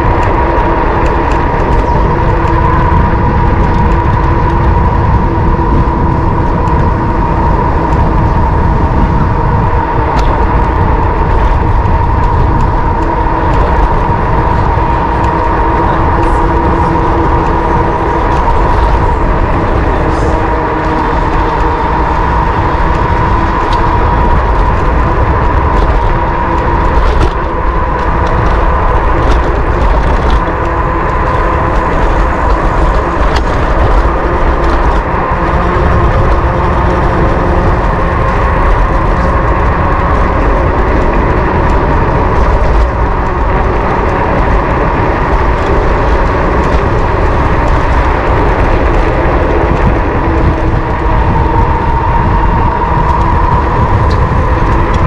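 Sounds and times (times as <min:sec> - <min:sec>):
steady whine: 0:00.0 - 0:55.0
wind rushing over microphone: 0:00.0 - 0:55.0.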